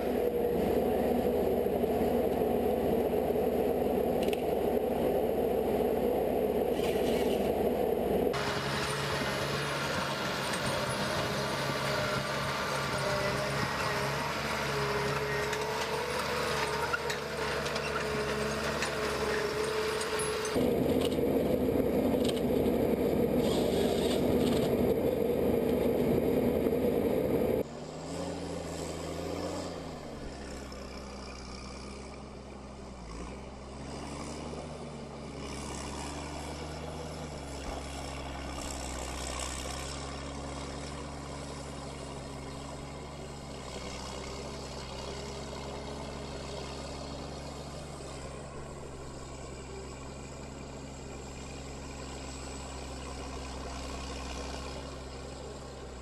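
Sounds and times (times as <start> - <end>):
heavy engine running: 0.0 - 56.0
loud machine noise: 6.7 - 27.6.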